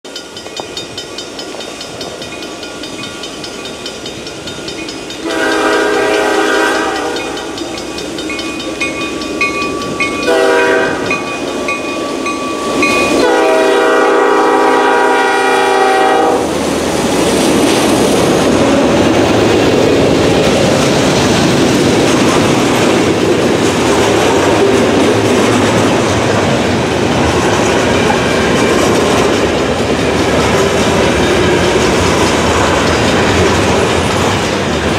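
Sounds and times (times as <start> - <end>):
wheels clacking on rail joints: 0.1 - 16.0, 16.6 - 34.9
diesel locomotive engines running: 0.2 - 34.9
train horn blasts: 5.2 - 7.6, 10.1 - 11.4, 12.8 - 16.6
freight cars rumbling: 16.5 - 34.9.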